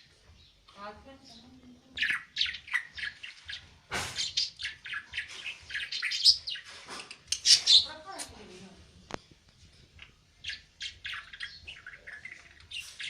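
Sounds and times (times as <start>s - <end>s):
budgerigar chattering: 1.9s - 8.3s.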